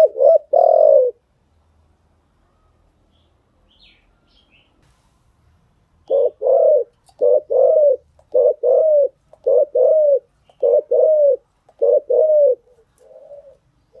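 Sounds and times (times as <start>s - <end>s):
dove cooing: 0.0s - 1.2s, 6.1s - 14.0s.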